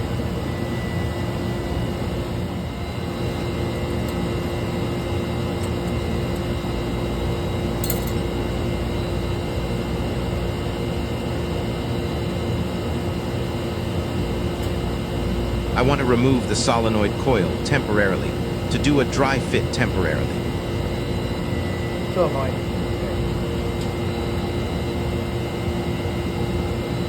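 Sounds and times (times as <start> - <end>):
machinery droning: 14.4 - 25.3.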